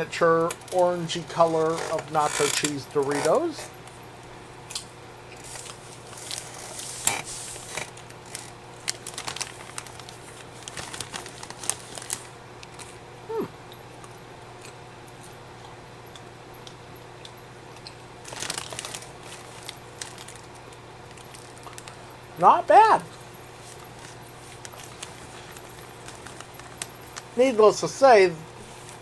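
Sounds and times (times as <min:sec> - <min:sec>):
plastic snack bag crinkling: 0:05.5 - 0:13.0, 0:18.2 - 0:29.0
popcorn clicks while eating: 0:05.5 - 0:22.0.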